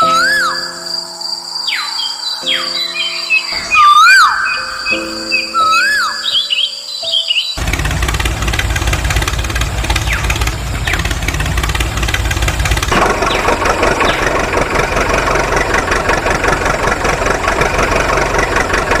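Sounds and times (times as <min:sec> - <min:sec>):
tractor engine idling: 0:07.6 - 0:19.0.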